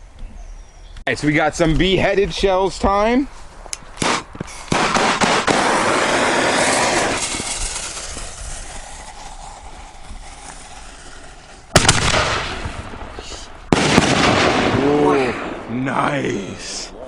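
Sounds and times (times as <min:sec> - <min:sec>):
firework bang: 0:04.0 - 0:15.7
firework hissing crackling rush: 0:04.0 - 0:16.9.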